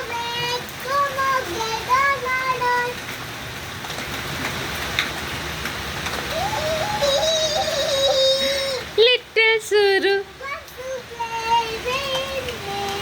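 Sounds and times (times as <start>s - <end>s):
child singing: 0.0s - 3.0s, 6.3s - 8.8s, 10.2s - 13.0s
steady rain falling: 0.0s - 13.0s.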